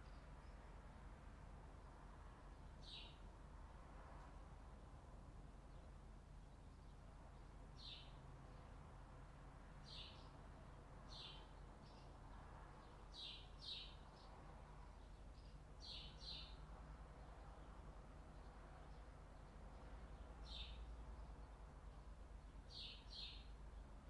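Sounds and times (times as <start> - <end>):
faint bird chirps: 22.7 - 23.9.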